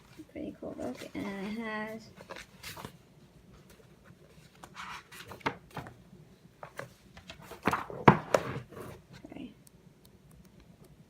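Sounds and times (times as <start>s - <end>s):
paper rustling: 0.0s - 6.0s, 6.6s - 9.0s
books knocking: 7.6s - 8.6s.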